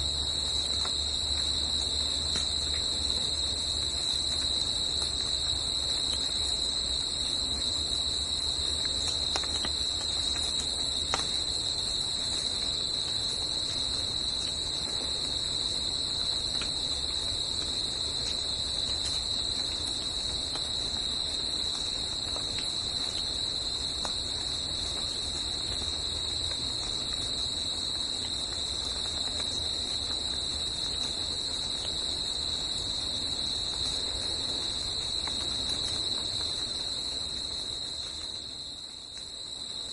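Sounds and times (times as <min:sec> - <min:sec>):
faint ticks: 0:00.6 - 0:03.1, 0:08.7 - 0:11.5.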